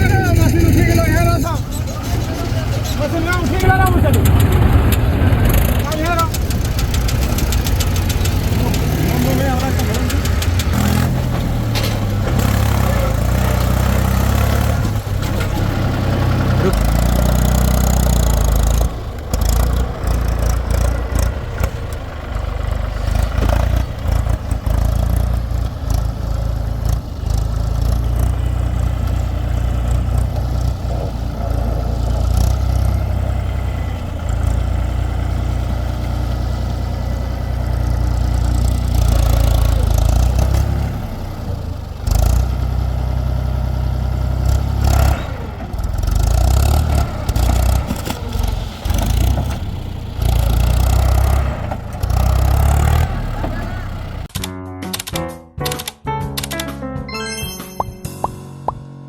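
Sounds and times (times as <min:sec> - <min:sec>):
clattering knocks and bangs: 0:00.0 - 0:17.0
heavy diesel machinery running: 0:00.0 - 0:54.3.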